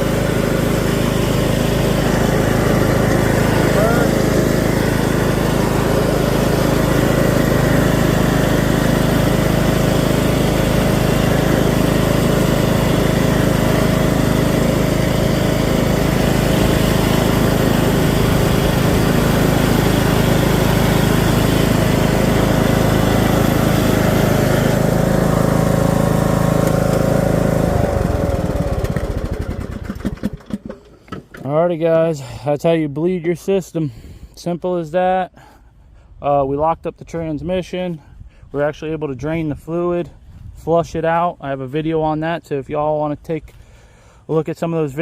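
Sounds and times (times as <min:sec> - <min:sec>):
riding lawn mower engine: 0:00.0 - 0:34.4.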